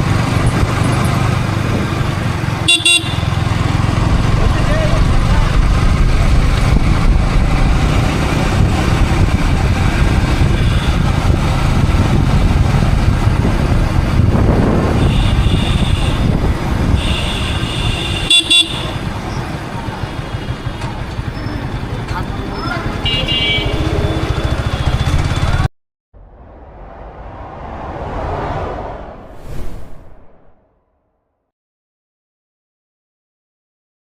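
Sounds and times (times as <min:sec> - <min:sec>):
wind and motorcycle engine rumble: 0:00.0 - 0:31.0
vehicle horn: 0:02.6 - 0:03.5, 0:10.4 - 0:11.1, 0:15.0 - 0:19.1, 0:23.0 - 0:25.5.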